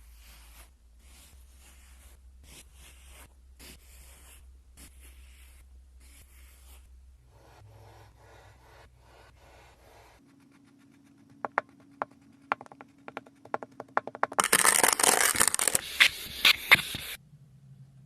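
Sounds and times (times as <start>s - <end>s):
blade slicing sand: 14.8s - 17.2s.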